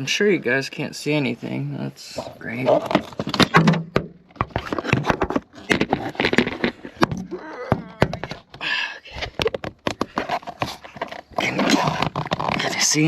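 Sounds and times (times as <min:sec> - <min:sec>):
phone handling clicks and scrapes: 0:09.2 - 0:12.8.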